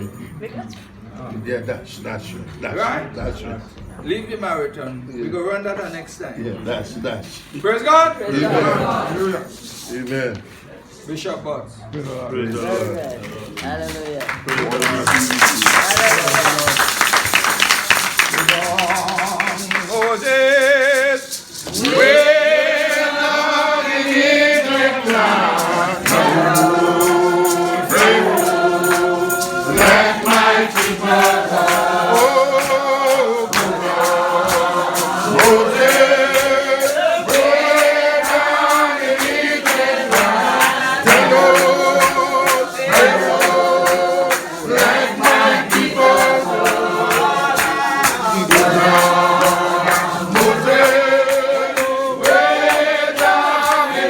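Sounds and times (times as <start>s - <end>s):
congregation singing a hymn: 8.2s - 9.8s, 14.5s - 54.0s
sharp percussive strikes: 15.3s - 54.0s.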